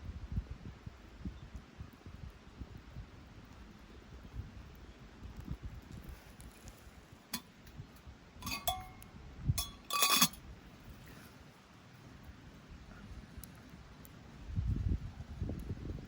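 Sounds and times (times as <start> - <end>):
metal camp gear clinking: 8.4 - 9.0, 9.6 - 10.4.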